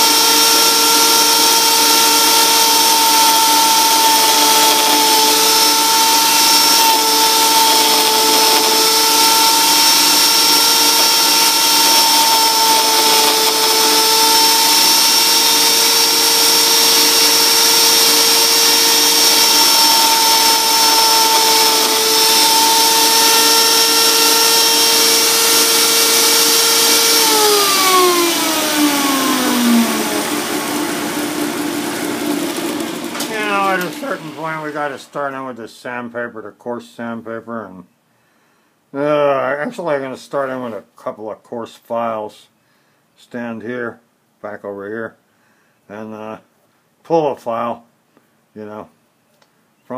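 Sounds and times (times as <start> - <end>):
power tool whining: 0.0 - 35.2.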